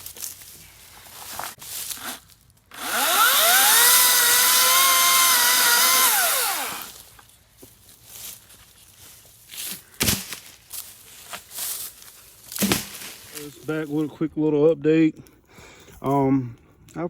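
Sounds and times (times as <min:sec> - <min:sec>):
electric chainsaw motor whining: 0:02.0 - 0:07.0.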